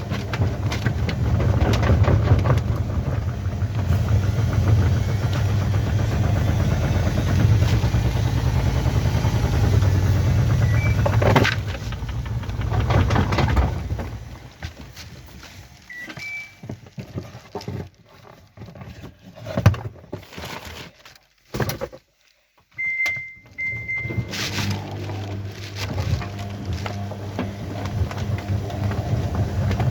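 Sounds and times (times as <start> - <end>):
knocks and clunks: 0.0 - 15.3
washing machine hum: 0.0 - 17.5, 22.8 - 29.9
short electronic beeps: 22.8 - 24.3.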